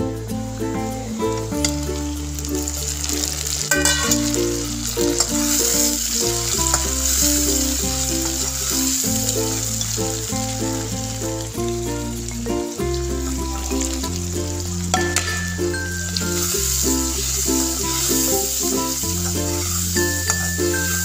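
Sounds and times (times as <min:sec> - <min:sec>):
instrumental background music: 0:00.0 - 0:21.0
tomatoes sizzling in oil: 0:00.0 - 0:21.0
metallic clink: 0:03.7 - 0:04.4, 0:14.9 - 0:16.6.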